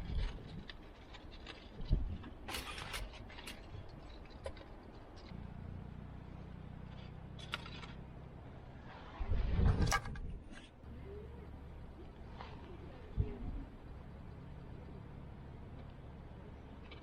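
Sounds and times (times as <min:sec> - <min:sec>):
sharp clicks and crackles: 0:00.0 - 0:05.5, 0:06.9 - 0:08.0, 0:15.7 - 0:17.0
low mechanical hum: 0:00.0 - 0:17.0.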